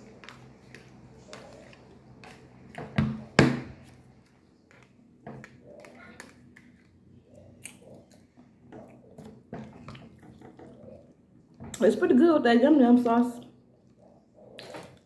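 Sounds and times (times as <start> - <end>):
chewing food: 4.1 - 11.6.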